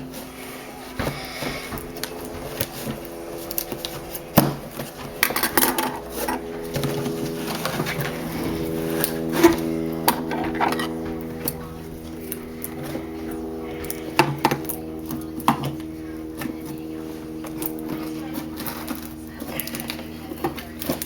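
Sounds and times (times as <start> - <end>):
cardboard box being handled: 0.0 - 9.7
steady low hum: 0.0 - 21.0.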